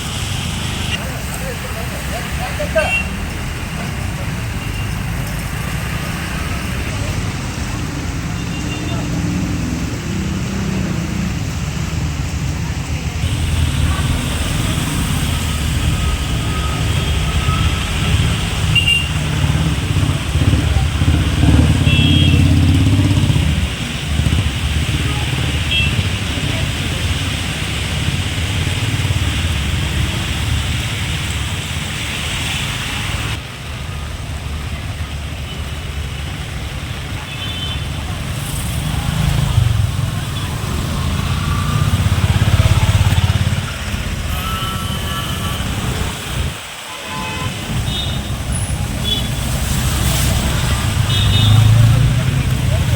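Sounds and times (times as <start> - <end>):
road traffic rumble: 0.0 - 52.9
steady hiss: 13.2 - 18.4.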